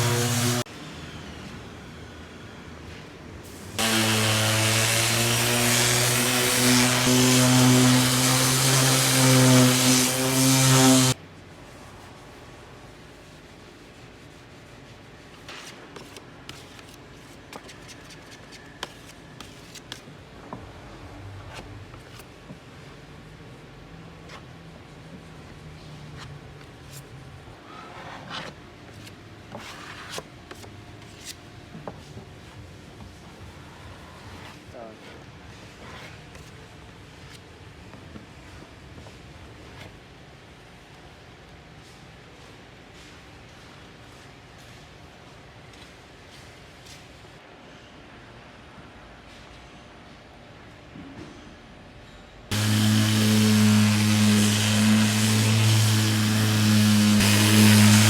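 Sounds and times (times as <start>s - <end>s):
power tool humming: 0.0s - 0.6s, 3.8s - 11.2s, 52.5s - 58.0s.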